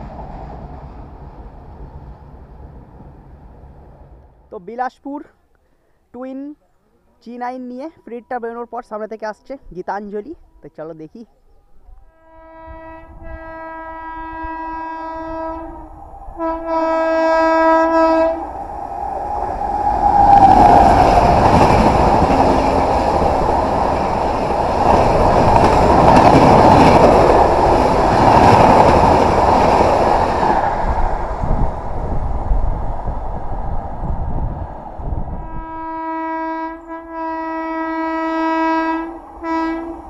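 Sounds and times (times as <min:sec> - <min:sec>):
train passing at speed: 0:00.0 - 0:04.5, 0:12.1 - 0:40.0
train horn blasts: 0:12.0 - 0:18.4, 0:35.3 - 0:40.0.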